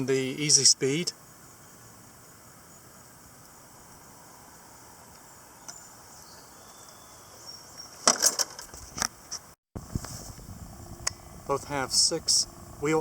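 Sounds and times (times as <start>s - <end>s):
crickets chirping: 0.0s - 9.5s.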